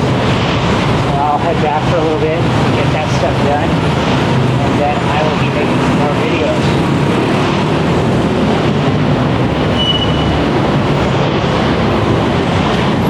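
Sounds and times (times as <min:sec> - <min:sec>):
high whine: 0:00.0 - 0:13.0
train rumbling past: 0:00.0 - 0:13.0.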